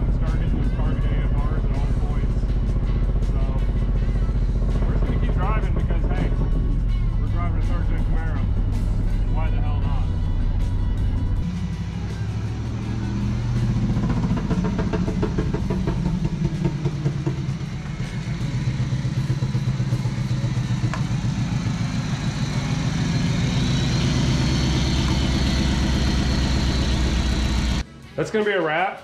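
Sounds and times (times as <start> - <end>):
unmuffled car engine running: 0.0 - 27.8.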